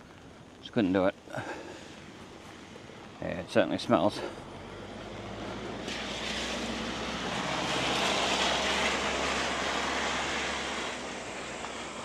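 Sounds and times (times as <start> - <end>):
vehicle passing by: 4.2 - 12.0.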